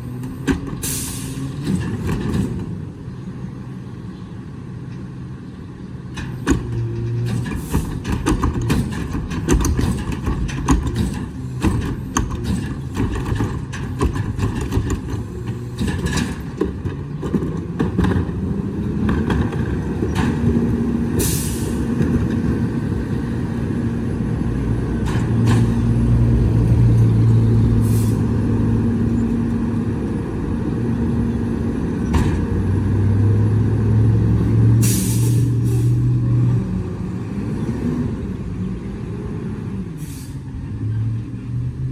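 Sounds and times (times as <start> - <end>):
diesel engine running: 0.0 - 41.0
air brake hisses: 0.8 - 1.5, 21.2 - 21.8, 27.8 - 28.3, 34.8 - 36.0, 40.0 - 40.5
metal clanks and knocks: 6.2 - 20.7.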